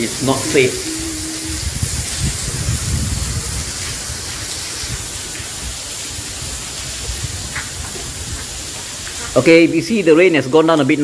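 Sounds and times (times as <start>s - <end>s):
wind on microphone: 0.0s - 8.8s
heavy rain on vegetation: 0.0s - 11.0s.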